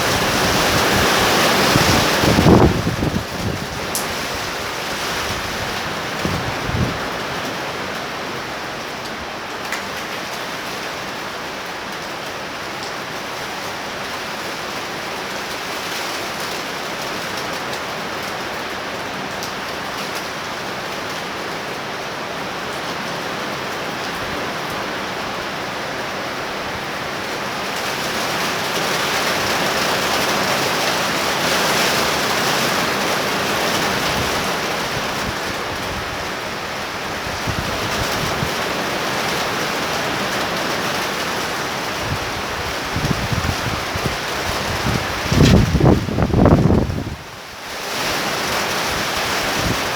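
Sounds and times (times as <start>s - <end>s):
wind buffeting microphone: 0.0s - 7.3s, 42.0s - 47.3s
heavy rain pouring: 0.0s - 49.9s.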